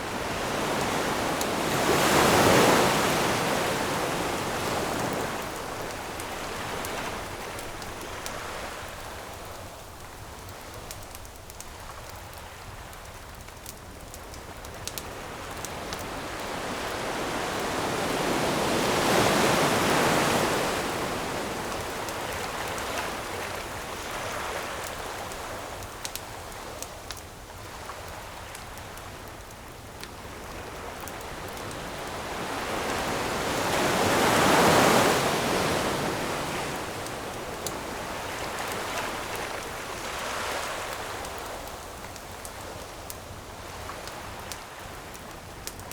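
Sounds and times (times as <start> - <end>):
ocean waves washing onto shore: 0.0 - 45.9
campfire crackling and popping: 4.2 - 16.5, 21.7 - 33.2, 36.8 - 45.9.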